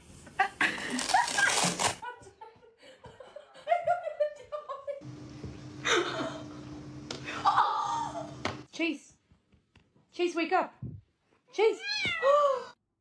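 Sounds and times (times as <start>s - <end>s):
low hum: 5.0s - 8.7s
person laughing: 5.8s - 6.5s, 7.2s - 8.4s.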